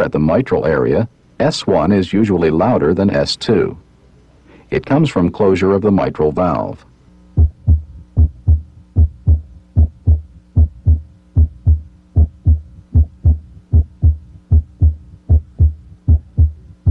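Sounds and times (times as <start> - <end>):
faint steady hum: 0.0 - 16.9
heartbeat through stethoscope: 7.4 - 16.9.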